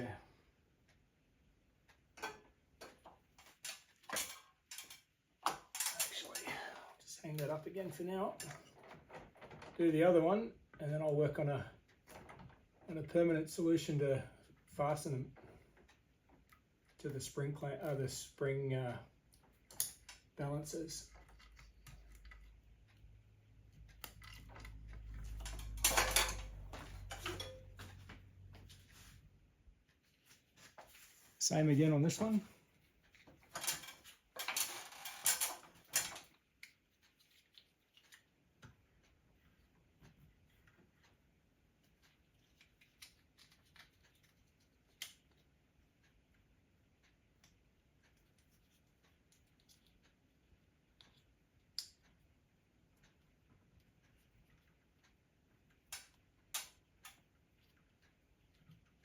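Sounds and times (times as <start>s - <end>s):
metal hardware clinking: 24.1s - 28.0s.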